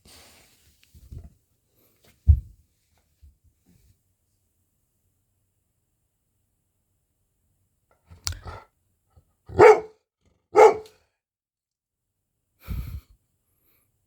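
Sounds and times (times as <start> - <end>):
soft thump: 2.3 - 2.6
dog barking: 9.5 - 11.0.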